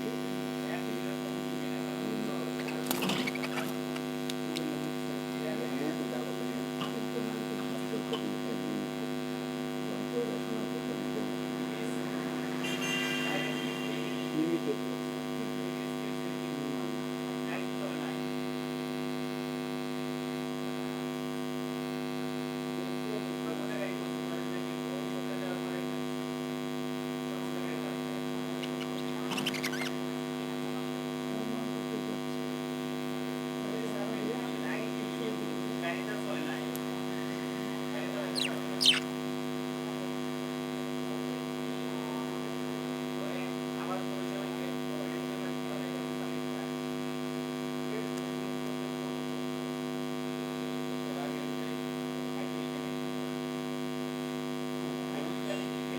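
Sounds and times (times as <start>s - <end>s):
steady electrical hum: 0.0s - 19.9s, 21.3s - 41.0s
budgerigar chirps and chatter: 2.6s - 3.8s, 28.6s - 30.0s, 37.2s - 39.1s
short sharp high sounds: 11.6s - 15.0s.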